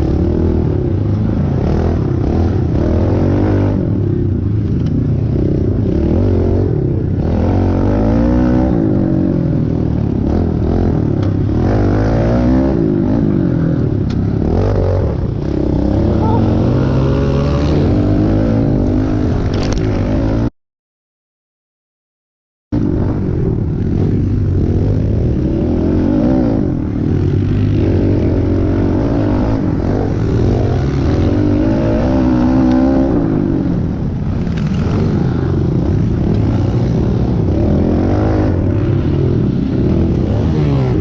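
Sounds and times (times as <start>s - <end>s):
small motorbike engine revving: 15.6s - 20.1s.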